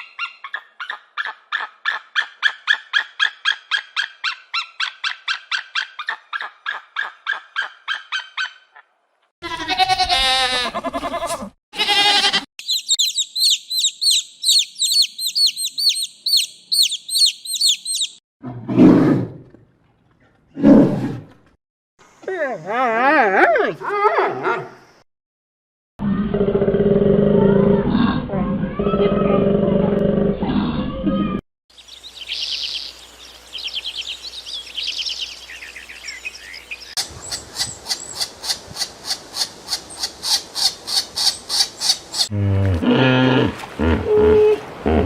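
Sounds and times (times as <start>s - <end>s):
bird chirping: 12.6s - 18.2s, 31.7s - 42.3s
sharp bird chirps: 12.6s - 18.2s
songbird singing trilled phrases: 12.6s - 18.2s, 31.7s - 38.3s
big cat roaring: 18.4s - 19.6s, 26.0s - 31.1s.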